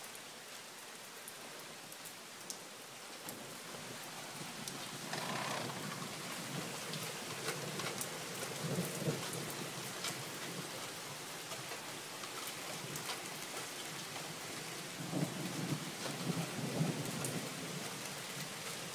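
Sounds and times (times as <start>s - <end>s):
rain hissing: 1.8s - 18.9s
raindrops ticking: 4.6s - 14.3s.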